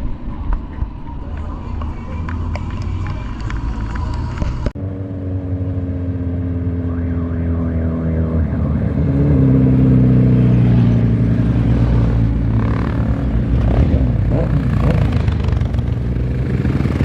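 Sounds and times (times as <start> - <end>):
motorcycle engine running: 0.4 - 17.0.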